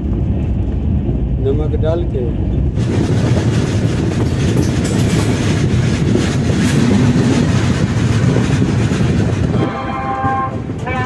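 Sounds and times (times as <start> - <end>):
train rumbling on track: 0.0 - 11.0
wheels clattering over rail joints: 2.5 - 11.0.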